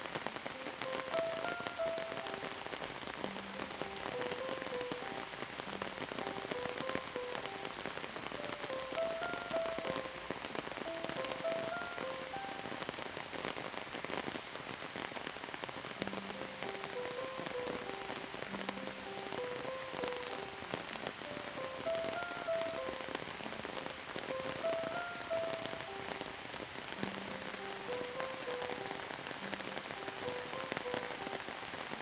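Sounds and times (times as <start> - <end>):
soft slow melody: 0.0 - 13.3, 15.8 - 32.0
rain pattering on a surface: 0.0 - 32.0.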